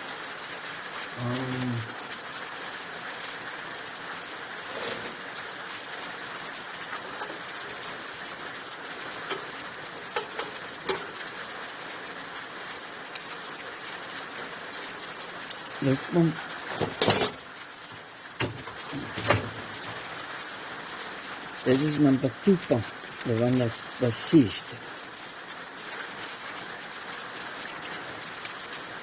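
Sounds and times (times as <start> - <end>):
steady hiss: 0.0 - 29.0
person humming: 1.1 - 2.0.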